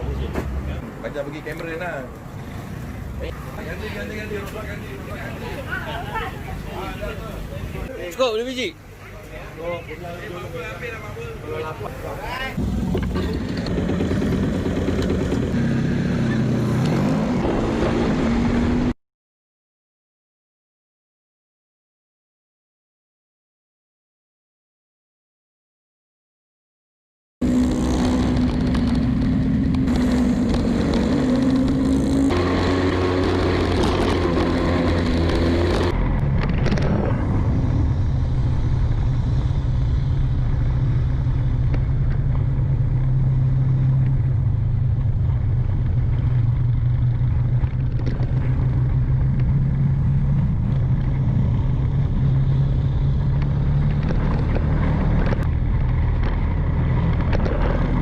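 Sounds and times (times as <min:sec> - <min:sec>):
motorcycle engine running: 0:12.6 - 0:16.7, 0:27.4 - 0:58.0.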